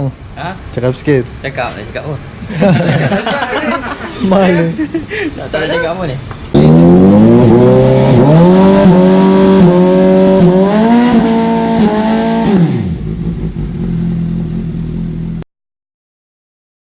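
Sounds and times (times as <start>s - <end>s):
motorcycle accelerating through gears: 6.5s - 15.4s.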